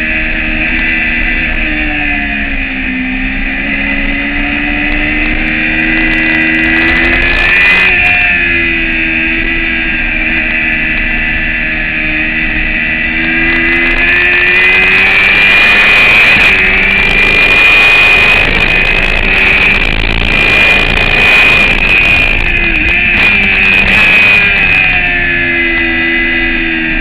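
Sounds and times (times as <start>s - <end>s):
motorcycle engine at high revs: 0.0s - 27.0s
wind rush: 13.2s - 26.0s.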